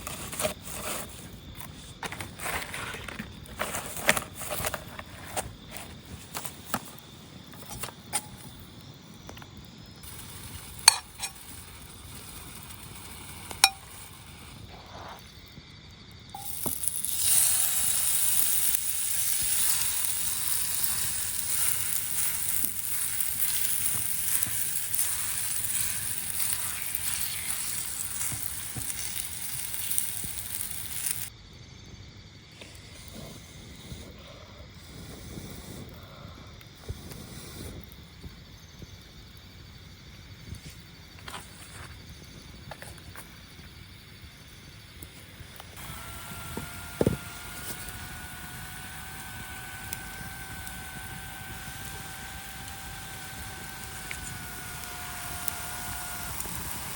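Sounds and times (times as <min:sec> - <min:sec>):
food sizzling on a pan: 0:09.9 - 0:15.5, 0:16.3 - 0:31.3, 0:44.5 - 0:56.9.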